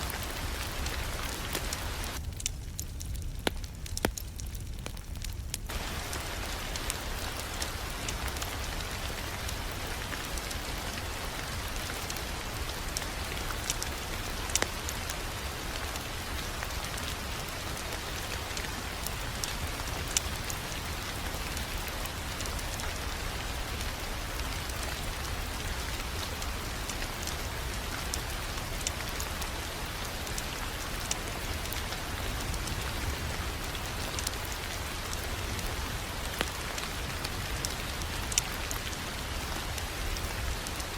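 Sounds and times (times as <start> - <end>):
wood fire hiss and rumble: 0.0 - 40.9
wood fire pops: 0.1 - 12.2, 12.9 - 22.8.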